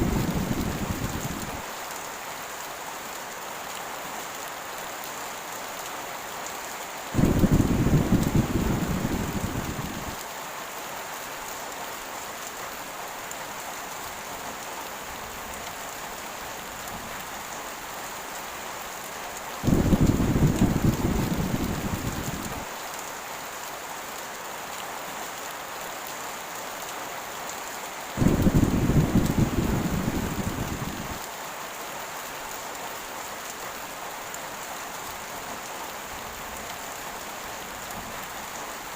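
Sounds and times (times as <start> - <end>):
thunder rolls: 0.0 - 1.6, 7.2 - 10.2, 19.6 - 22.7, 28.2 - 31.2
heavy rain: 0.0 - 38.9.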